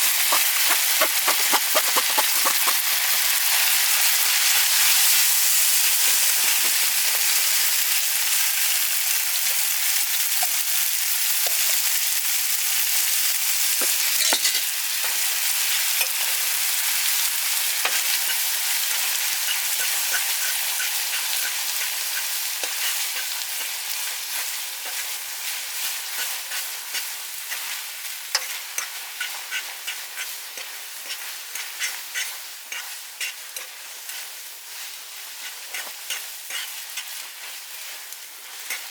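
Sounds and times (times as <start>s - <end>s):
oil popping and spitting: 0.0s - 3.3s
food sizzling in a pan: 0.0s - 38.9s.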